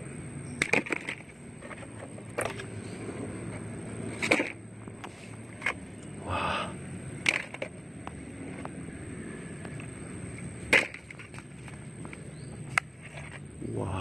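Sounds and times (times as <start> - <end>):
plastic toy cars clicking: 0.6 - 2.7, 4.1 - 5.8, 7.2 - 8.8, 9.6 - 13.5.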